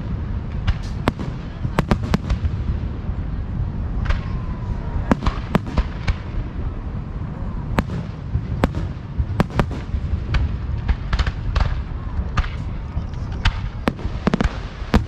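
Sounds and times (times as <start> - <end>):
low rumble of booms: 0.0 - 15.0
firework shell bursts: 0.6 - 2.4.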